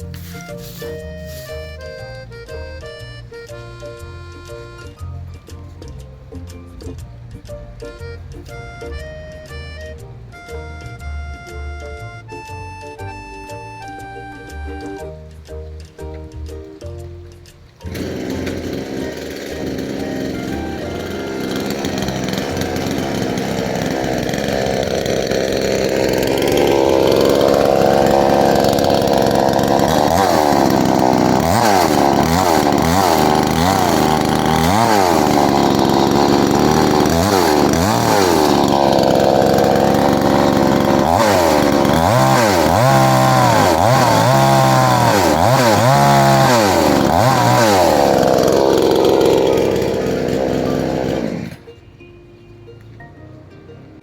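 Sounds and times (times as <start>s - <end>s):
chainsaw engine revving: 0.0s - 2.6s, 17.8s - 51.7s.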